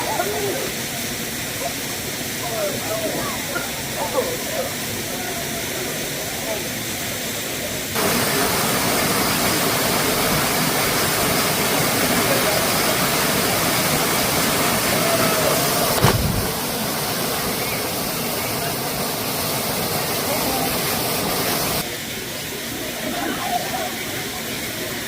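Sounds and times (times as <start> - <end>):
waterfall rushing: 0.0 - 25.0
sharp thump: 16.0 - 16.6.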